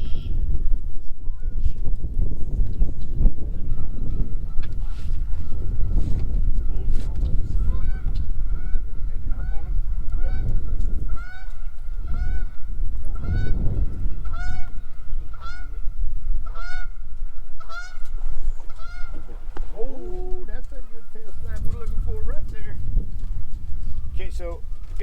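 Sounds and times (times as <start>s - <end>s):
goose honking: 7.6s - 13.6s, 14.2s - 15.8s, 16.4s - 17.0s, 17.6s - 19.4s.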